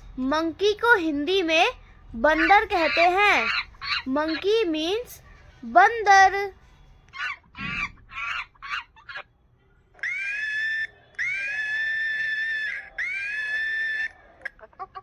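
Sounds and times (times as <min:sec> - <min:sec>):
monkey chattering calls: 0:02.3 - 0:04.6, 0:07.2 - 0:09.3, 0:10.0 - 0:15.0
monkey high-pitched screams: 0:02.4 - 0:04.4, 0:07.2 - 0:09.2, 0:10.0 - 0:15.0.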